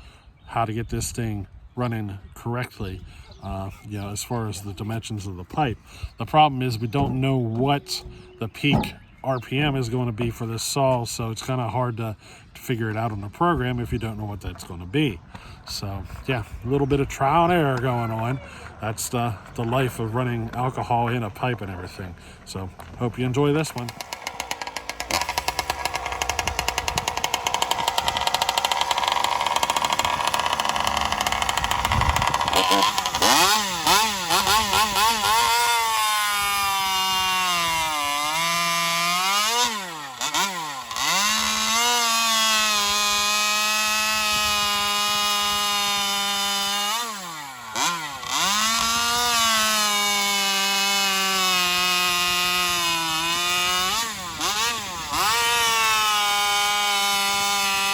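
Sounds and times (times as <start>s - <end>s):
two-stroke chainsaw engine revving: 6.2s - 9.9s, 16.9s - 57.9s.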